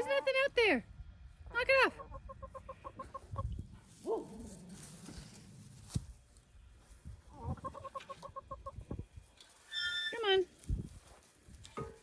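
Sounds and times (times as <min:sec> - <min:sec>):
chickens clucking: 0:01.9 - 0:03.9, 0:07.0 - 0:09.6.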